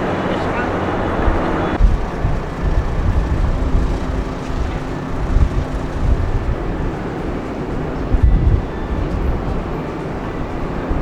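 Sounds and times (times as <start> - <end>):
car ferry engine rumble: 0.0 - 10.6
wind buffeting microphone: 0.0 - 11.0.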